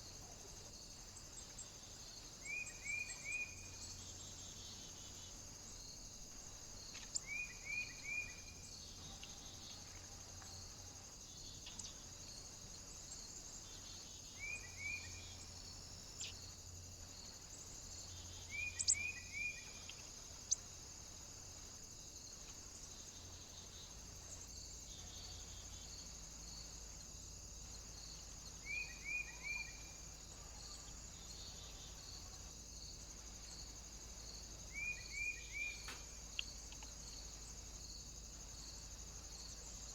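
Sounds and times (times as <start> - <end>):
steady high-pitched hiss: 0.0 - 39.9
small bird calling: 18.5 - 20.6.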